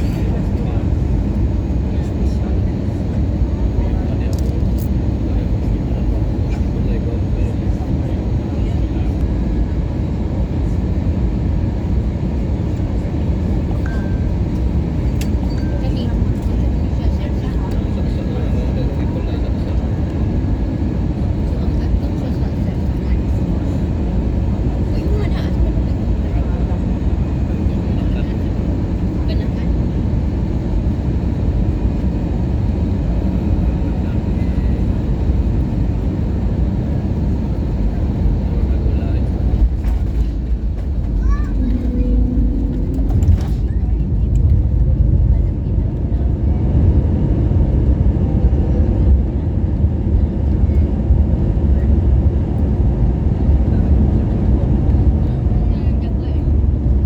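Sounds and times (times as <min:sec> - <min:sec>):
airliner cabin engine noise: 0:00.0 - 0:57.0.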